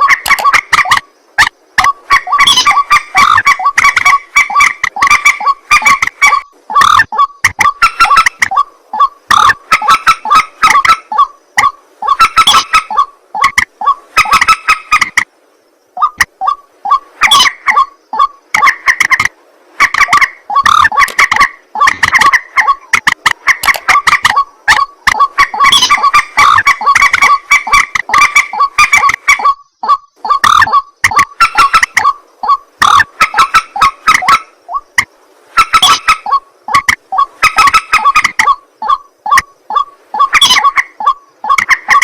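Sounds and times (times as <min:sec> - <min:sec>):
birds harsh honking calls: 0:00.0 - 0:15.1, 0:19.8 - 0:34.8.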